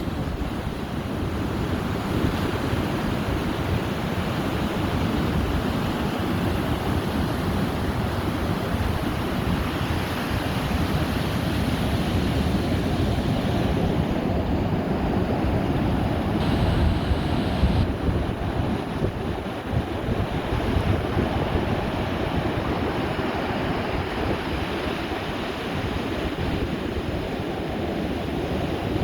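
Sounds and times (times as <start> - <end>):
wind buffeting microphone: 0.0 - 29.0
surf breaking on beach: 7.8 - 27.8.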